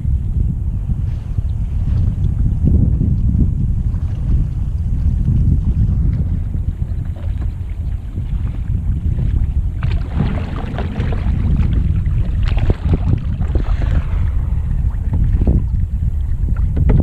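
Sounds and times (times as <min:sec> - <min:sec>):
wind buffeting microphone: 0:00.0 - 0:17.0
paddle strokes splashing in water: 0:05.8 - 0:17.0.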